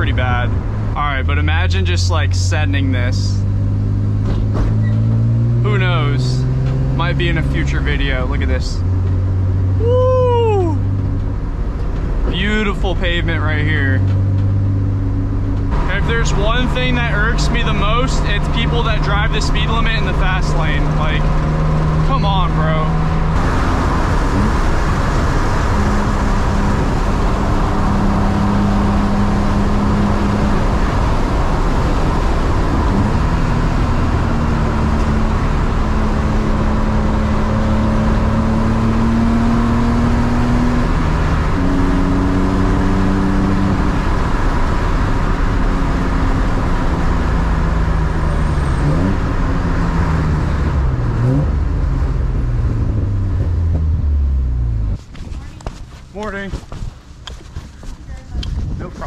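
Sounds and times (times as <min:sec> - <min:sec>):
car engine cruising: 0:00.0 - 0:59.0
tyre and road noise: 0:00.0 - 0:59.0
engine rising blips: 0:14.0 - 0:55.0.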